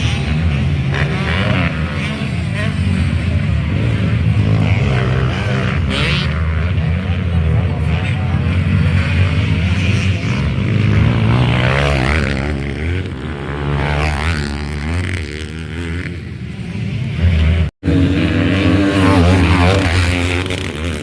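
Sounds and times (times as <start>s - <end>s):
dirt bike engines revving: 0.0s - 21.0s.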